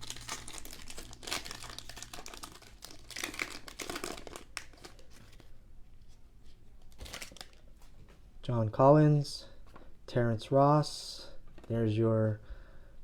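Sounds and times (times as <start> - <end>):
plastic wrapper tearing and crinkling: 0.0 - 5.4, 6.9 - 7.6.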